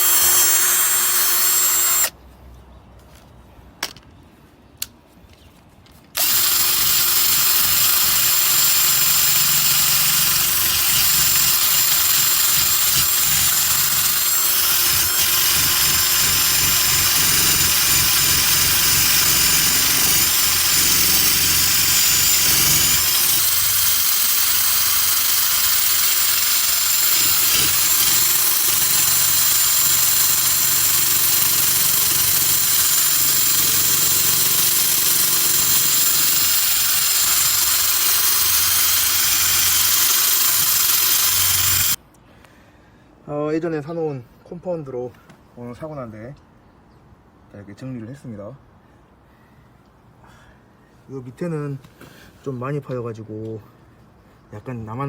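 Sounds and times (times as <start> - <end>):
electric rotary tool buffing: 0.0 - 2.1, 6.2 - 42.0.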